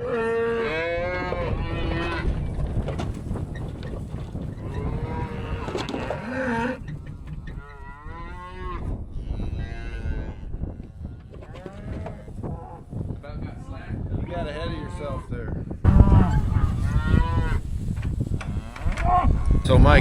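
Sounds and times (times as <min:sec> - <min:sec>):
cattle mooing: 0:00.0 - 0:02.3, 0:04.6 - 0:12.8, 0:15.9 - 0:17.6, 0:18.4 - 0:19.5.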